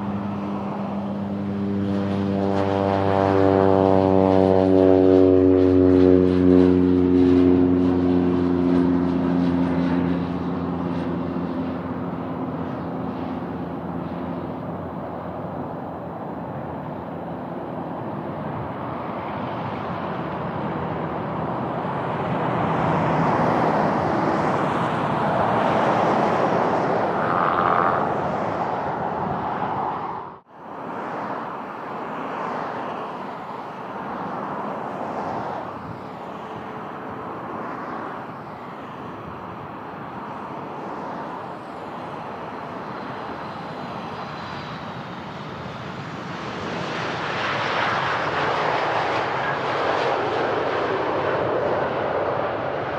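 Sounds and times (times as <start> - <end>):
short engine whine: 0.0 - 39.7
airplane engine passing: 0.0 - 52.9
wind buffeting microphone: 6.4 - 30.4.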